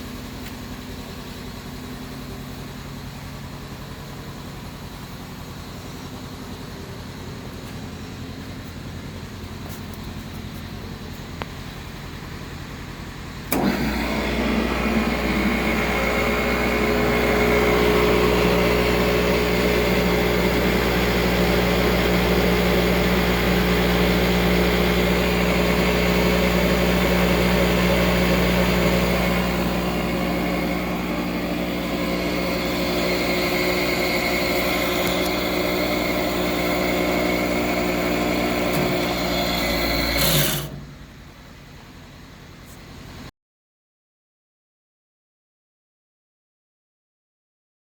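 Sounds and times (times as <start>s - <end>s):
table saw motor humming: 13.5s - 40.9s.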